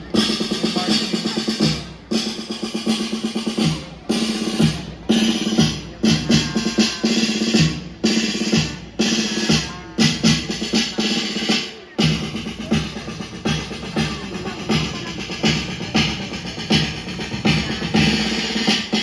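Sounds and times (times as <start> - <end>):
drum kit beating: 0.0 - 19.0.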